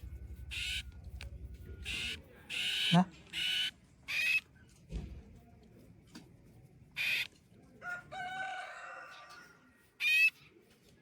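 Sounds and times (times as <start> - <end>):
bird squawking: 0.5 - 0.9, 1.8 - 4.4, 7.0 - 7.3, 10.0 - 10.4
drawn-out bird call: 0.5 - 0.9, 1.8 - 4.4.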